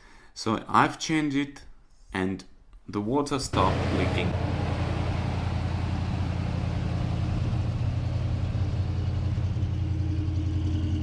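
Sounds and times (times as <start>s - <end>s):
truck engine idling: 3.5s - 11.0s.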